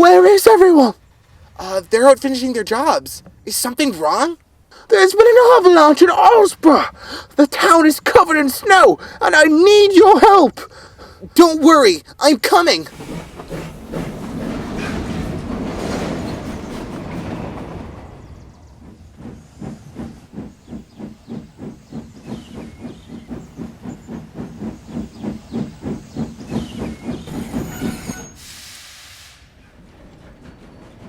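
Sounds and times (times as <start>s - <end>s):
steam locomotive chuffing: 0.0s - 31.0s
steam hissing: 12.4s - 31.0s.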